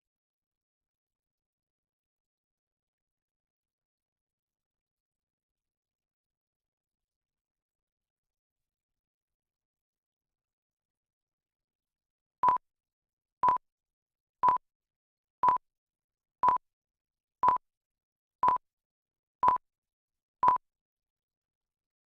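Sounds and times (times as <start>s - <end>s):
short electronic beeps: 17.4s - 17.6s.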